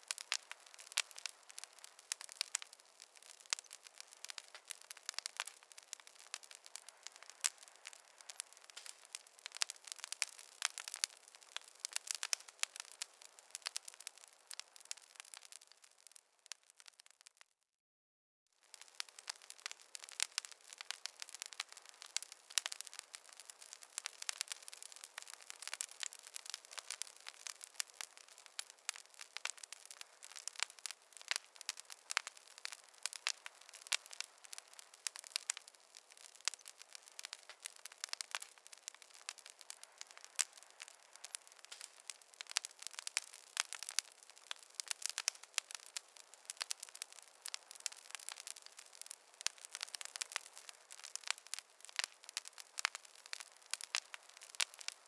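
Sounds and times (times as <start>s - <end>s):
campfire crackling: 0.0s - 17.5s, 18.6s - 55.0s.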